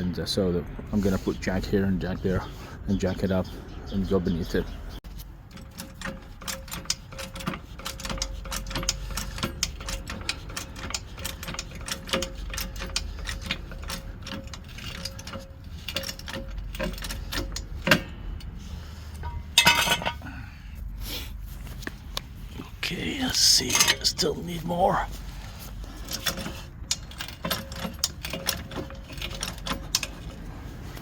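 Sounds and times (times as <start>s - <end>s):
scraping: 5.1s - 31.0s
car jack clicking: 5.5s - 18.6s.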